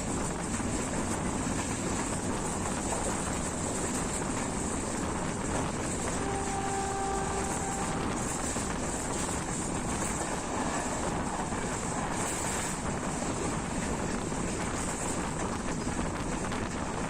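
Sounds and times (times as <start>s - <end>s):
train rushing at speed: 0.0s - 17.0s
wind on microphone: 0.0s - 17.0s
brief held tone: 6.2s - 8.5s.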